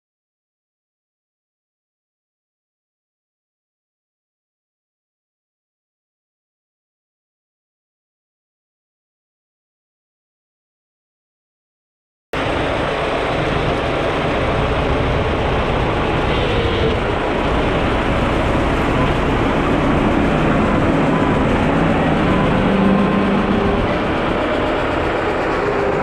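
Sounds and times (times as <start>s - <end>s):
faint engine hum: 12.4s - 26.0s
heavy track machinery running: 12.4s - 26.0s.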